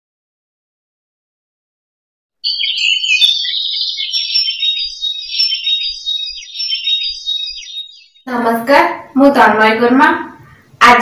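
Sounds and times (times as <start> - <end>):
birds chirping and twittering: 2.4 - 8.8.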